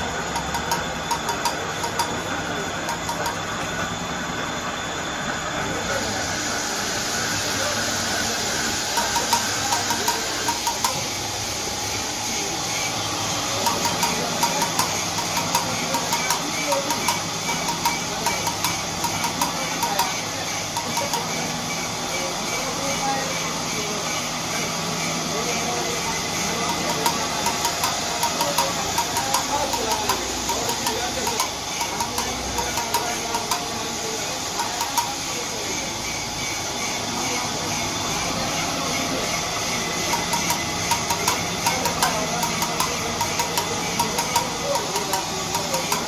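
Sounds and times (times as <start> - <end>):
faint voices: 0.0 - 46.0
workshop machinery whirring: 0.0 - 46.0
sharp regular ticks: 26.7 - 33.9, 40.0 - 46.0.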